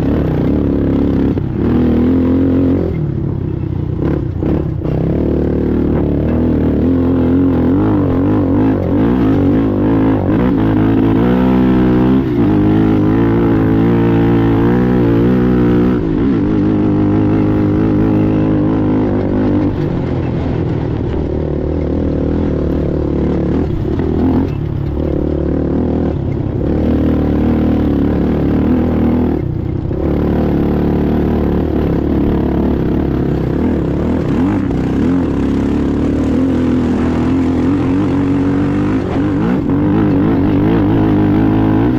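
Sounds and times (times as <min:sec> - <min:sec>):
racing atv engine: 0:00.0 - 0:41.9.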